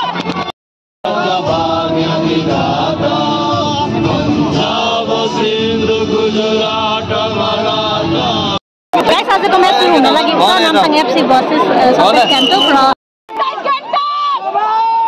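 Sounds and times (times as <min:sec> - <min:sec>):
music with chanted vocals: 0:01.1 - 0:08.6.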